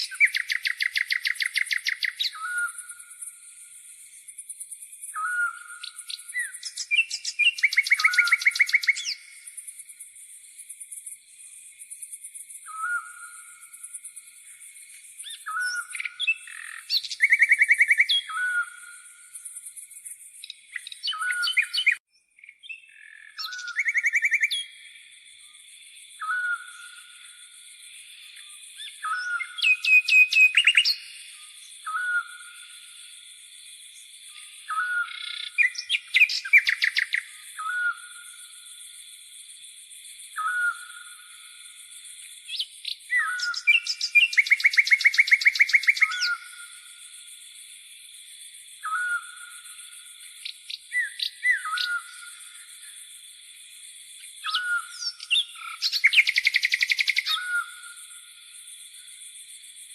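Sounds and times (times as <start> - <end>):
fast rattling bird trills: 0.0 - 2.7, 5.1 - 9.4, 35.2 - 37.2, 42.5 - 46.6, 54.5 - 57.6.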